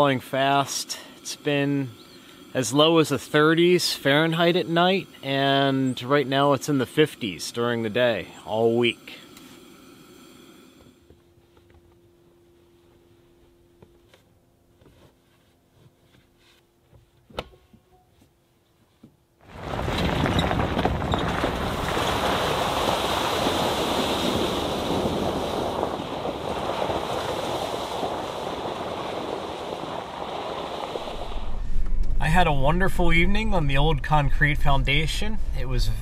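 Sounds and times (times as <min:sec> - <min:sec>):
wind: 0:00.0 - 0:36.0
surf: 0:19.5 - 0:36.0.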